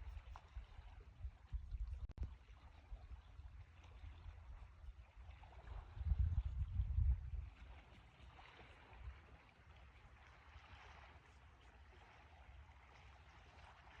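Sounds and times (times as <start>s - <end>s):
weak low rumble: 0.0s - 7.8s.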